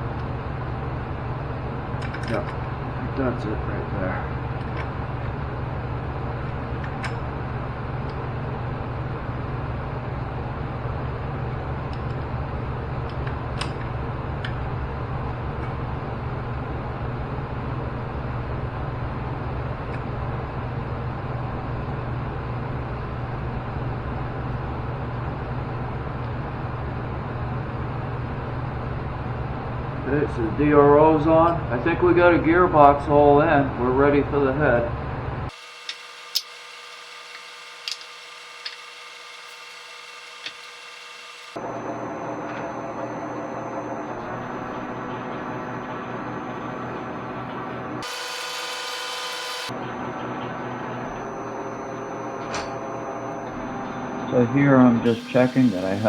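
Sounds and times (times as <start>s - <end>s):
low mechanical hum: 0.0s - 56.0s
even hiss: 55.1s - 56.0s.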